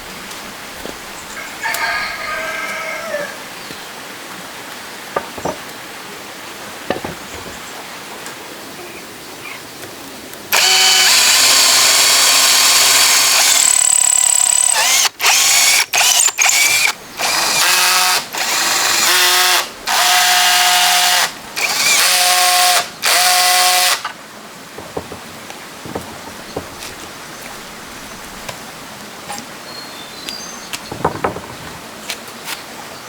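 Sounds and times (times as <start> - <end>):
electric power drill running: 10.5 - 24.1.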